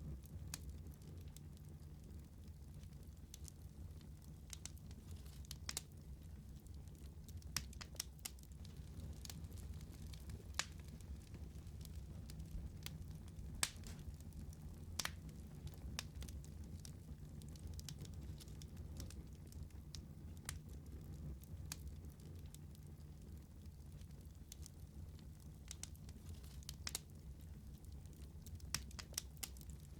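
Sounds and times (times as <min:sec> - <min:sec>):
low rumble of flames: 0:00.0 - 0:29.9
wood fire crackling: 0:00.0 - 0:29.9.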